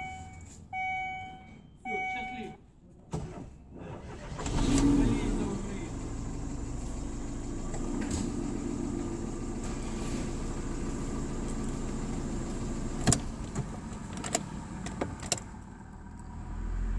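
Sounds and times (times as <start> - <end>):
car engine running: 4.1 - 16.9.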